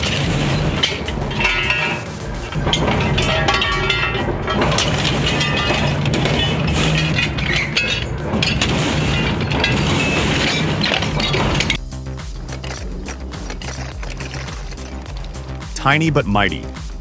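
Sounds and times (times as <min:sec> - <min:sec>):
shredder cracking and crashing: 0:00.0 - 0:11.8.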